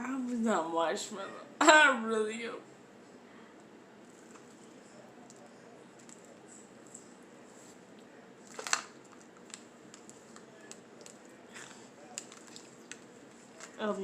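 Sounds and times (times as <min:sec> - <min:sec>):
faint chewing clicks: 0:05.2 - 0:07.1, 0:07.9 - 0:13.8
crisp bite into snack: 0:08.5 - 0:11.3.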